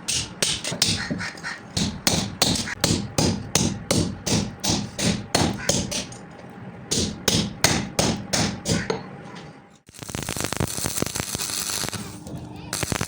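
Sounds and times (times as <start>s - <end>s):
hammer striking hot steel on anvil: 0.0s - 6.2s, 6.9s - 9.1s.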